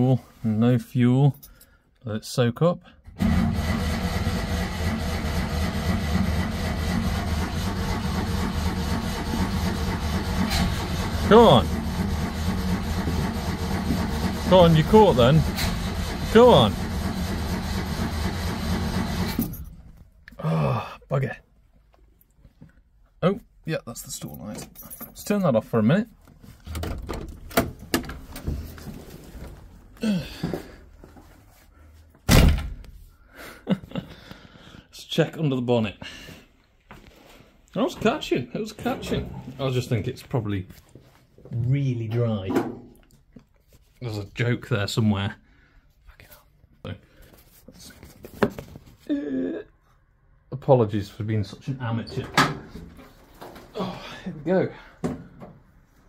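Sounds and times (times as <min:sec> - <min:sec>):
car engine cold starting: 0:03.1 - 0:19.8.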